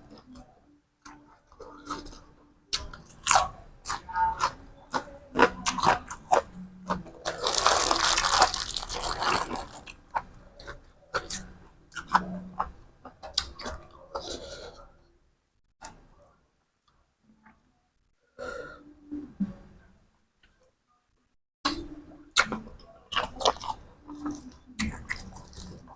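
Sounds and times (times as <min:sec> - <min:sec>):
chewing and crunching food: 0:00.0 - 0:14.9, 0:21.7 - 0:25.9.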